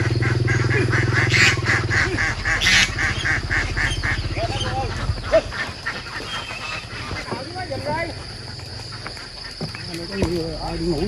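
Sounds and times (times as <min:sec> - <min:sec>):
ducks quacking: 0:00.0 - 0:11.0
engine running low: 0:00.0 - 0:11.0.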